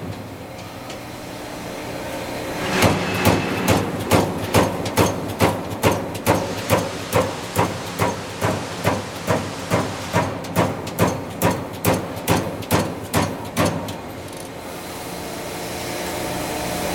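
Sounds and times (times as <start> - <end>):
machine running hum: 0.2 - 10.5
turret punch hitting sheet metal: 2.6 - 6.9.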